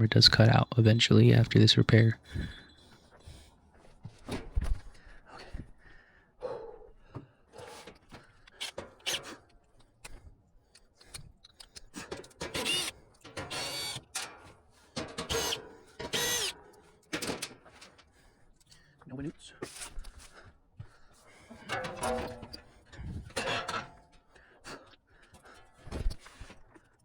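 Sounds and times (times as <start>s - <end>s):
power drill whirring: 8.6s - 9.4s, 12.3s - 14.3s, 15.2s - 16.6s
metal clicks and knocks: 11.1s - 15.4s, 17.0s - 18.1s, 21.5s - 22.7s.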